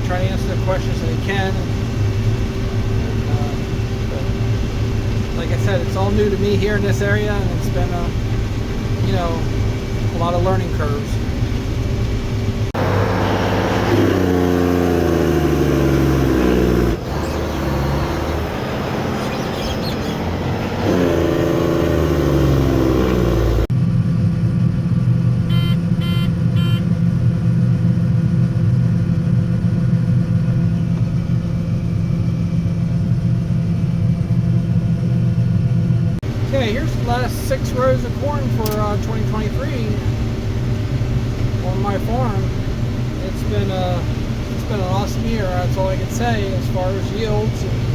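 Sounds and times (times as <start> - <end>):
farm machinery engines: 0.0 - 23.7, 36.2 - 47.9
short high beeps: 25.5 - 26.8.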